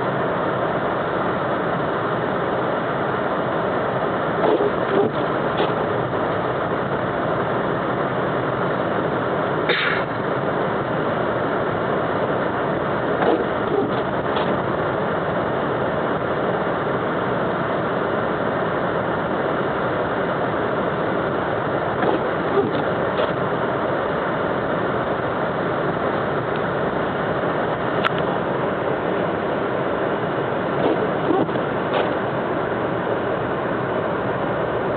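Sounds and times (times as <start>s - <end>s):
car road and engine noise: 0.0s - 34.9s.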